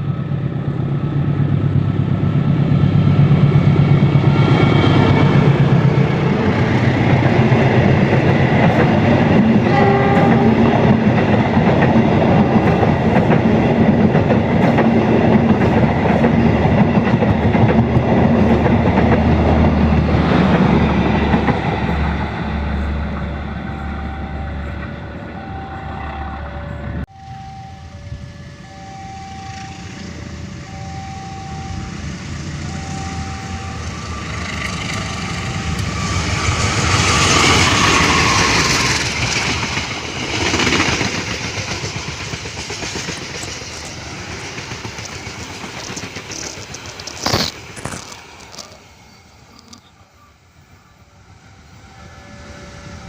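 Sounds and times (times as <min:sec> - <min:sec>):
locomotive horn: 0:09.5 - 0:11.1
two-note warning signal: 0:09.7 - 0:10.8, 0:23.2 - 0:36.0
train wheels clattering: 0:33.6 - 0:48.8.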